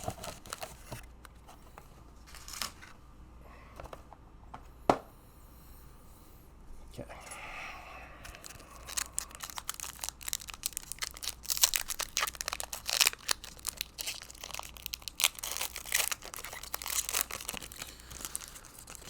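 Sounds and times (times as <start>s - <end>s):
plastic wrapper crinkling: 0.0s - 1.0s, 8.3s - 19.0s.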